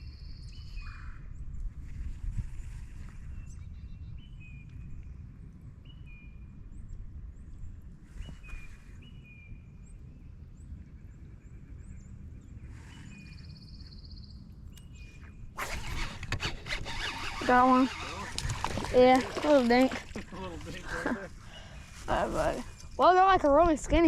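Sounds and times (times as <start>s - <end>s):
wind rumble on microphone: 0.0s - 24.0s
birds chirping: 8.3s - 24.0s
bird trilling: 14.8s - 19.9s.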